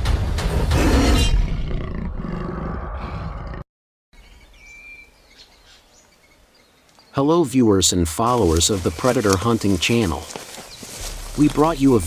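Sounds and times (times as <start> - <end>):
big cat roaring: 0.5 - 3.6.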